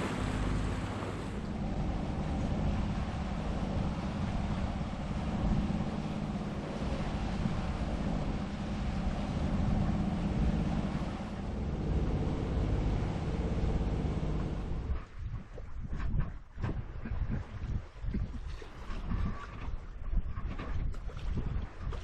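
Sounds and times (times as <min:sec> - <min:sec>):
steady low hum: 0:00.0 - 0:16.1
water washing along hull: 0:00.0 - 0:22.0
wind buffeting microphone: 0:00.0 - 0:22.0.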